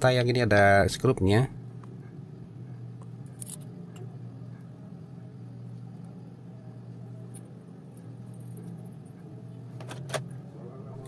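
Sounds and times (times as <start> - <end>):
low hum: 0.0 - 11.0
small metal parts clicking: 3.0 - 4.1.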